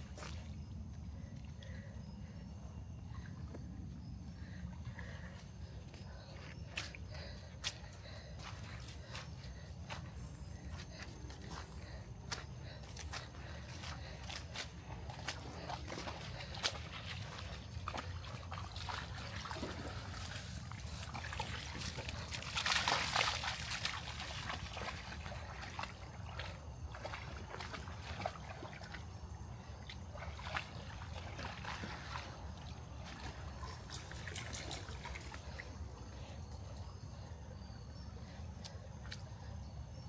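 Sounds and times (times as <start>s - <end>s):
splashing through shallow water: 4.4s - 39.6s
trickling splashes: 16.1s - 28.9s.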